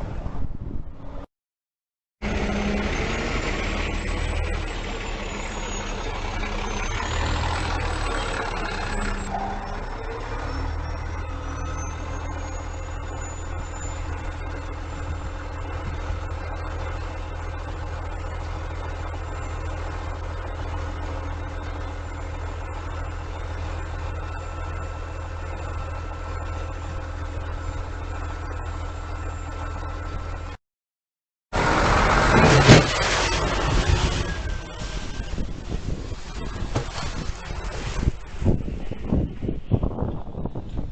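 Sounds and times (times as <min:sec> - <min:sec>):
rush of wind-like noise: 0:00.0 - 0:01.2, 0:33.1 - 0:40.9
diesel engine rumbling: 0:02.2 - 0:30.6, 0:31.5 - 0:40.9.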